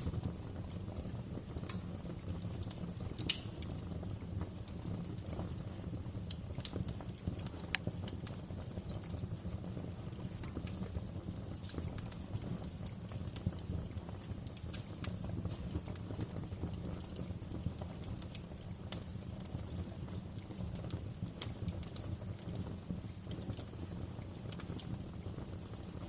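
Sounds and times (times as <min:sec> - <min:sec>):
fire pops and snaps: 0:00.0 - 0:26.0
low rumble of flames: 0:00.0 - 0:26.0.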